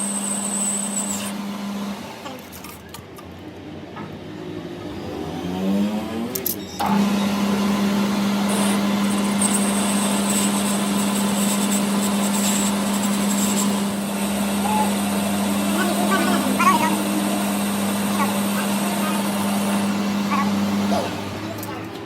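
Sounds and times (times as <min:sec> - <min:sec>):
electric motor winding up: 0:00.0 - 0:02.0, 0:06.4 - 0:22.0
loud steady hum with rushing: 0:07.8 - 0:22.0.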